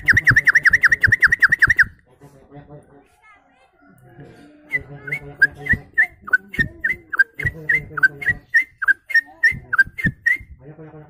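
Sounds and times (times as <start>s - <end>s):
man whistling birdlike chirps: 0.0s - 1.9s, 4.7s - 10.6s.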